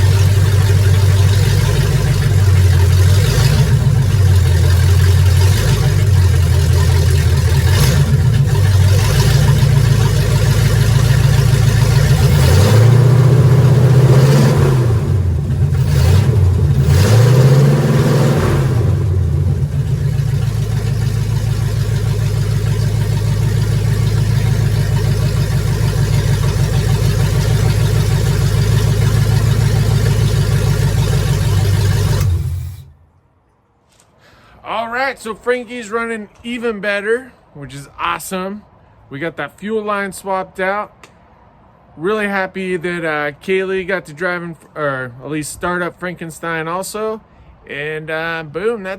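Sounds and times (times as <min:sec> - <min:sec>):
truck engine idling and revving: 0:00.0 - 0:33.2.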